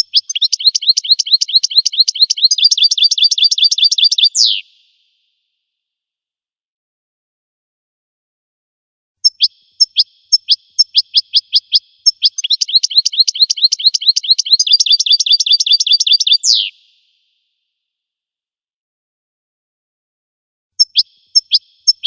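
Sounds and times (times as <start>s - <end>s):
songbird singing: 0.0s - 5.0s, 9.2s - 17.1s, 20.8s - 22.0s.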